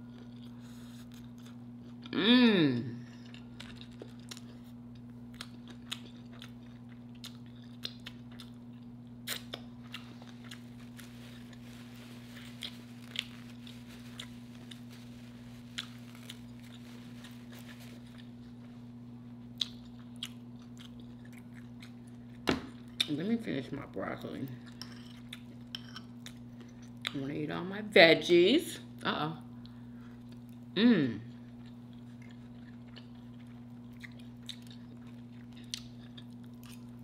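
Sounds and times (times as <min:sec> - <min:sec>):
person chewing crunchy food: 0:00.0 - 0:02.1, 0:03.0 - 0:23.1, 0:24.6 - 0:27.2, 0:29.6 - 0:37.0
steady low hum: 0:00.0 - 0:37.0.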